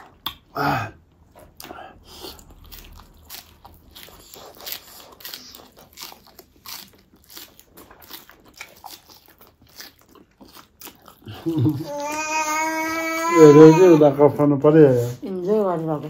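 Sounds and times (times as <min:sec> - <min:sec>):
wet mouth clicks and crunches: 0:01.4 - 0:11.5.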